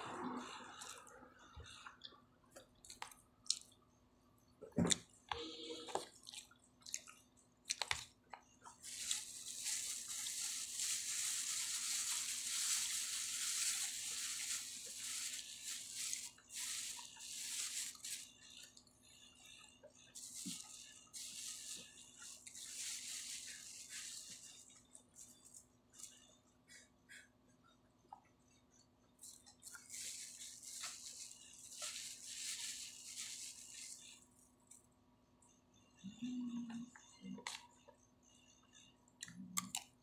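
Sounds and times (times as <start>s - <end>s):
crunchy chewing: 2.0s - 3.8s.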